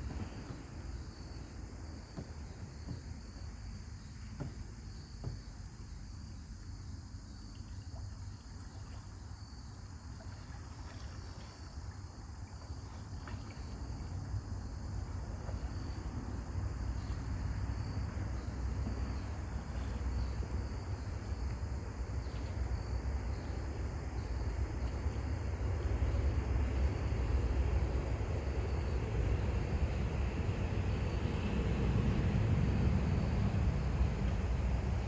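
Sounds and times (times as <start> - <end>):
faint insect drone: 0.0 - 35.0
wind buffeting microphone: 24.0 - 35.0.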